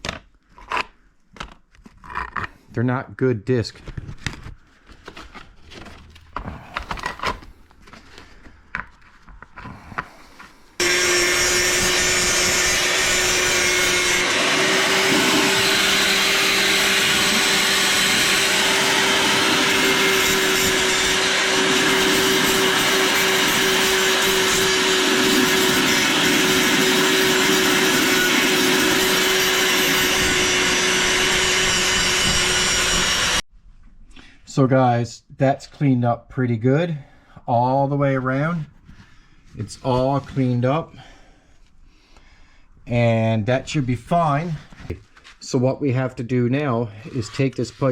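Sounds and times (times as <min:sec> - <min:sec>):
angle grinder grinding metal: 0:10.8 - 0:33.4.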